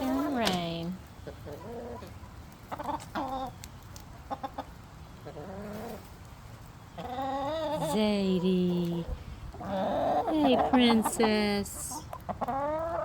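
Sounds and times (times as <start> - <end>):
hens clucking: 0.0 - 6.2, 6.8 - 13.0.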